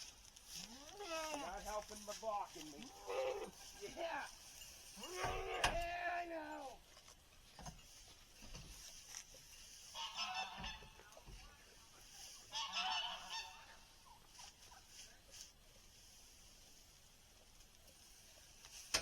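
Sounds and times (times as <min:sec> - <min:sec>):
faint rustling: 0:00.0 - 0:19.0
waterfowl honking: 0:09.9 - 0:11.1, 0:12.4 - 0:14.0.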